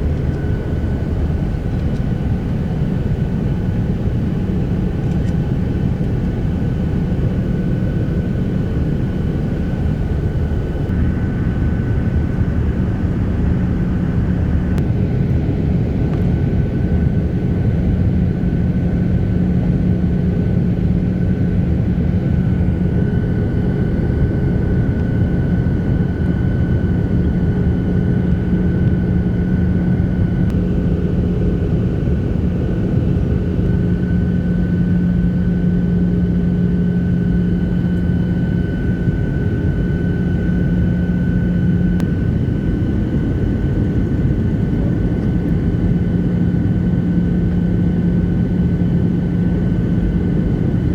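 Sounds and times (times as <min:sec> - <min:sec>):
airliner cabin engine drone: 0:00.0 - 0:50.9.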